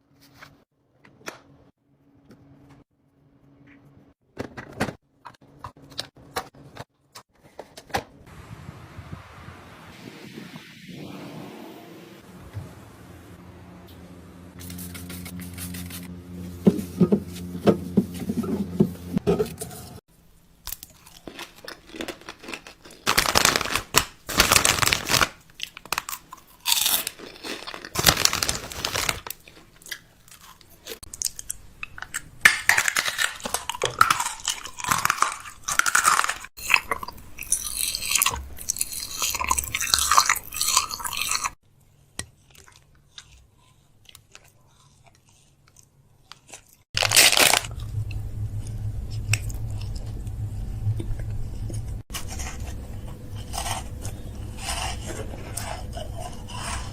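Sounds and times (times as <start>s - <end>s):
steady fridge hum: 12.3s - 20.5s, 47.0s - 56.9s
packaging crinkling: 21.9s - 29.8s, 47.0s - 47.8s.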